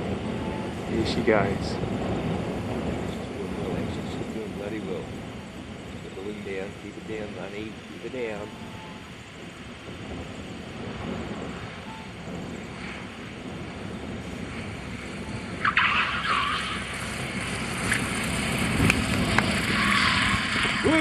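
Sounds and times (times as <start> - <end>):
plane tyres screeching on runway: 11.5 - 21.0.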